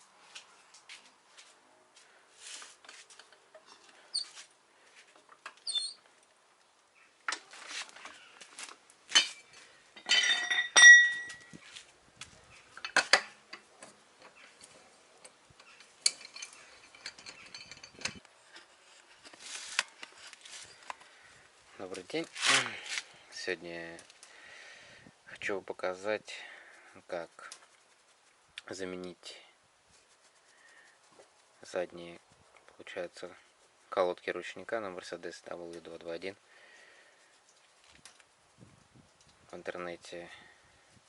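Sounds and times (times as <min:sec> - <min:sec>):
metal tools clinking and clattering: 0:09.1 - 0:11.5, 0:12.7 - 0:18.7.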